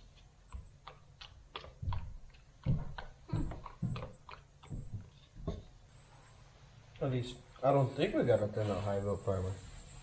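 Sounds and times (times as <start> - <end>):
irregular knocks and clicks: 0.5 - 5.7.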